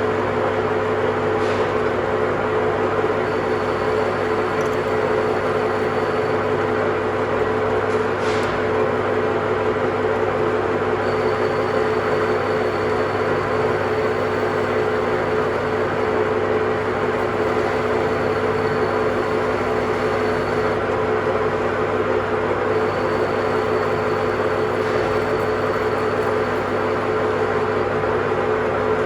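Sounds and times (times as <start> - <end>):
faint high whine: 3.2 - 7.0, 11.0 - 20.8, 22.7 - 28.0.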